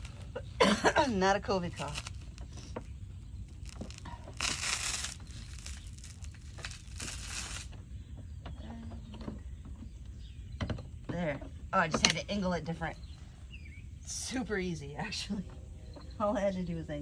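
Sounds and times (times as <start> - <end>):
plastic scraping and rustling: 0.0 - 7.9
low steady rumble: 0.0 - 17.0.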